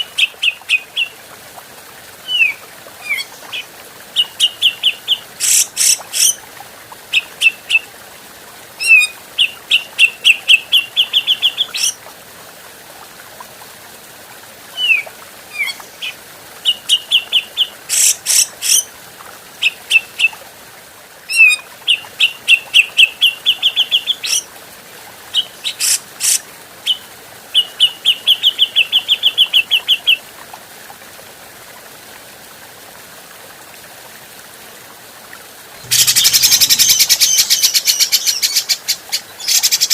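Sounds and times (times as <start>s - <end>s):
bird chattering calls: 25.8s - 26.4s, 35.8s - 38.7s.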